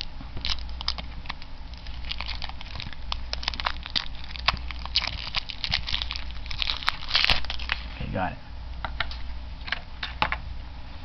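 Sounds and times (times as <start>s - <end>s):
plastic shrink wrap crinkling: 0.0s - 8.0s.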